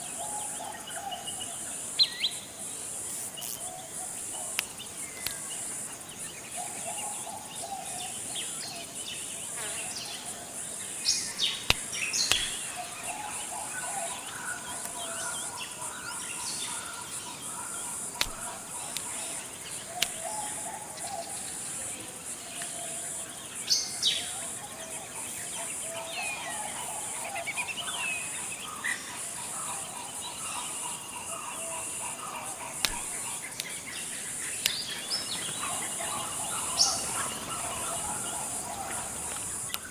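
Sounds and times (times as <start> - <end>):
high-pitched insect drone: 2.0 - 8.6, 26.0 - 39.9
sharp single clicks: 3.4 - 5.7, 11.1 - 13.4, 18.0 - 20.5, 32.8 - 33.9, 34.6 - 39.9
high bird chirps and trills: 34.7 - 39.9.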